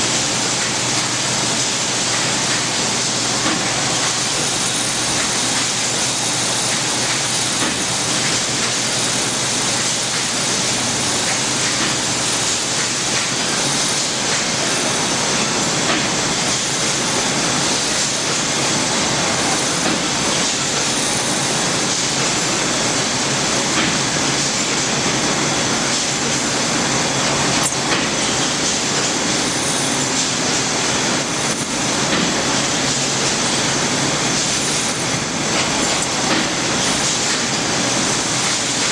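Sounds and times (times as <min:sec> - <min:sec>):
lathe running: 0:27.2 - 0:38.9.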